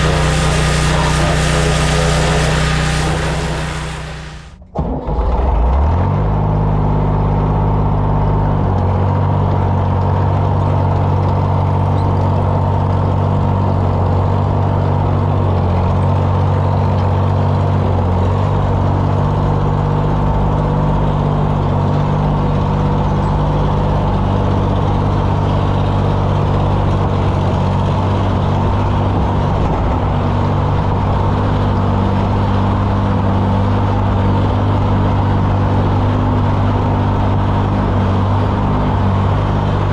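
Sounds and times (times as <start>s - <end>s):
even hiss: 0.0s - 4.6s
engine running steadily: 0.0s - 5.1s, 6.4s - 39.9s.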